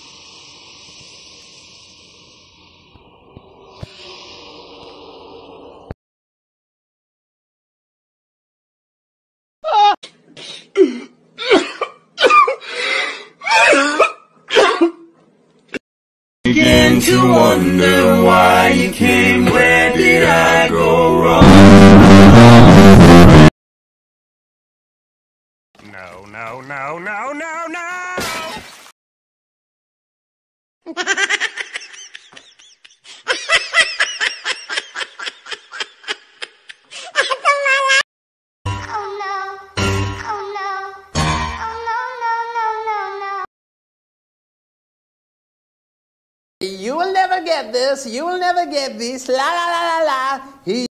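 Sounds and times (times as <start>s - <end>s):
person coughing and yelping: 10.4s - 12.8s, 13.4s - 15.1s, 36.2s - 38.0s
person laughing hard: 30.9s - 38.0s.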